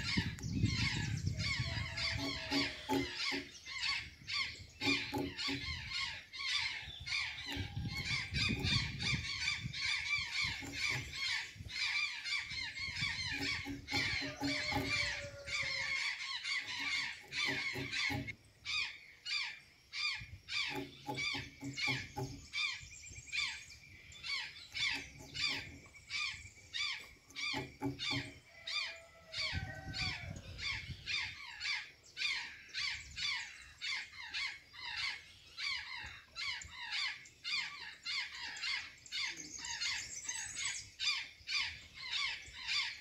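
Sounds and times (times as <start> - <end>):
jays calling rapidly: 0.0 - 22.8.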